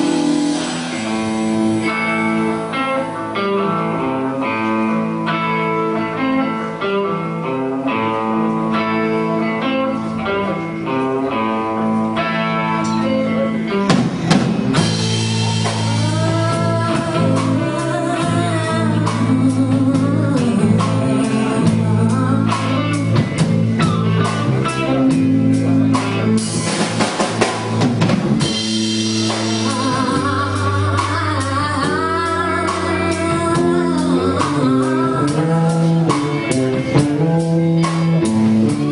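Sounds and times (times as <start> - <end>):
drums: 0.0 - 38.9
live band playing: 0.0 - 38.9
picked guitar pattern: 0.0 - 38.9
bending melody line: 8.4 - 38.9.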